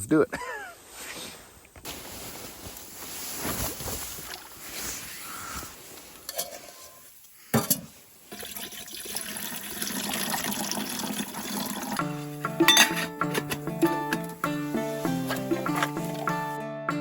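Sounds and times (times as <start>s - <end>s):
water sounds: 8.2s - 12.1s, 15.0s - 16.6s
background music: 11.7s - 17.0s.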